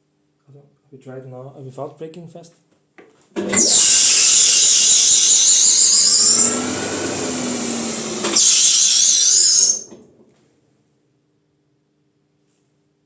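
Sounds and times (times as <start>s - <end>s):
spinning disc brake shrieking: 3.5s - 10.0s.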